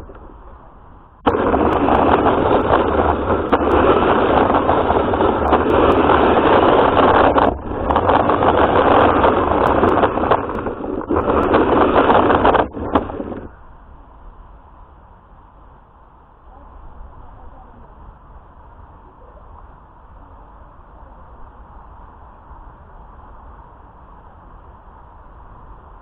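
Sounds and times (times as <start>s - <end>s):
radio-controlled car running: 1.3s - 13.5s.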